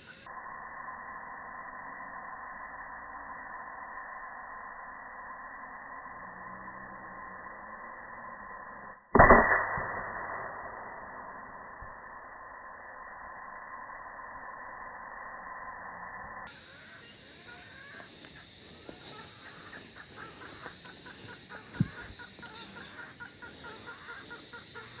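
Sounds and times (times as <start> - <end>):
steady high-pitched hiss: 0.0 - 25.0
birds calling: 16.5 - 25.0.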